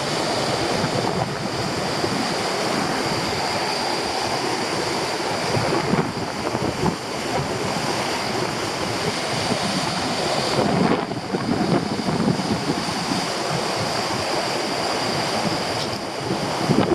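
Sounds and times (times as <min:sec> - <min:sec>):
wind gusts buffeting microphone: 0:00.0 - 0:16.9.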